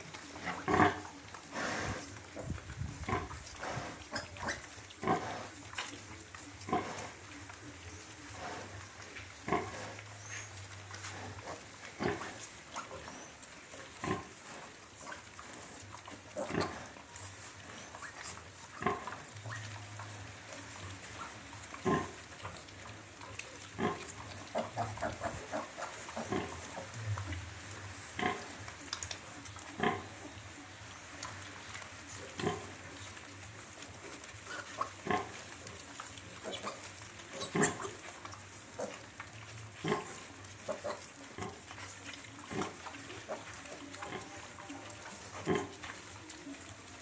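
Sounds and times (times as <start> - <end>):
low steady hum: 19.4 - 34.4.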